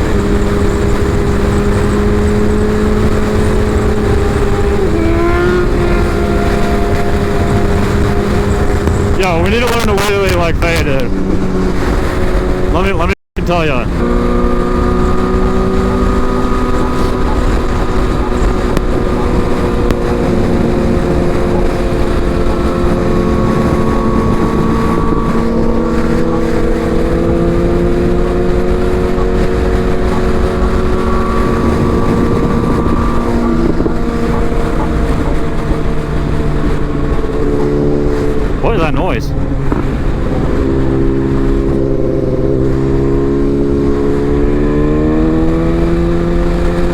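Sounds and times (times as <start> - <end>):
motorcycle engine droning: 0.0 - 46.9
wind rushing over microphone: 0.0 - 46.9.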